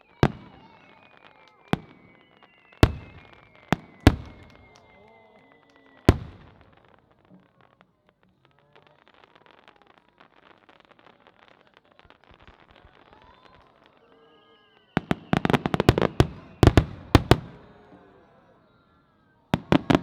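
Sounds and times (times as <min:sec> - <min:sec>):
fireworks loud bangs: 0:00.0 - 0:07.8, 0:12.2 - 0:17.9, 0:19.6 - 0:20.0
fireworks crackling: 0:00.0 - 0:18.0, 0:19.5 - 0:20.0.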